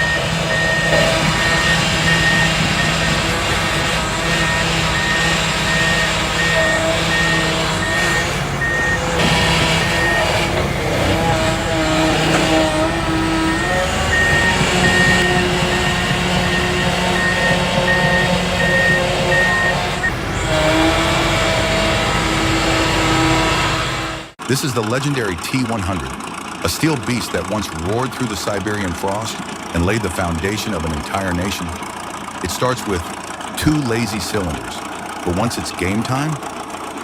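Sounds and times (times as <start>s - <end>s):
excavator alarm beeping: 0.0s - 23.4s
diesel engine running: 0.0s - 37.0s.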